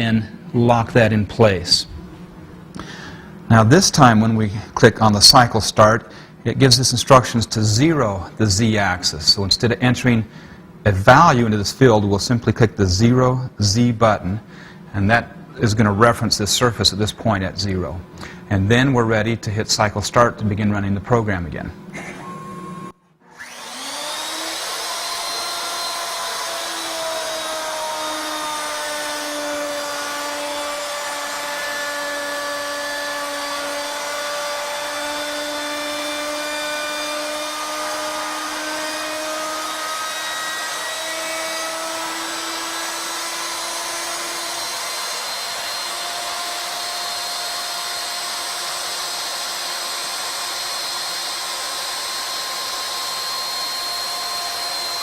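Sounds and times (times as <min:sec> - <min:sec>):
router spinning and cutting wood: 0:22.1 - 0:55.0.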